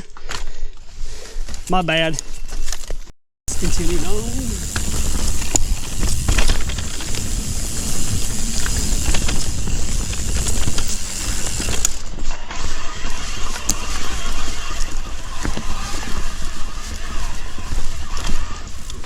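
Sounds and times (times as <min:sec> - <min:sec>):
bike tyres rolling on dirt: 0:03.5 - 0:19.0
bike drivetrain clicks and knocks: 0:03.7 - 0:12.4, 0:13.1 - 0:19.0.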